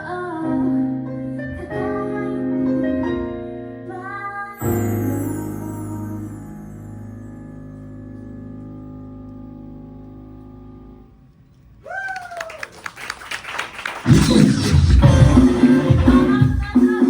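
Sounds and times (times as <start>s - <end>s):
audience clapping: 11.8s - 16.2s
loud band music: 14.0s - 17.0s.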